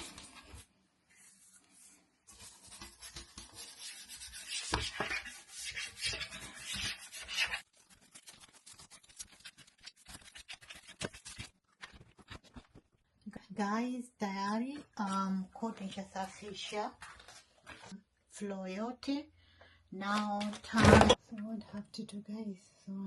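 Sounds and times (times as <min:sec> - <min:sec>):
floor scrubbing by hand: 0:00.0 - 0:11.5.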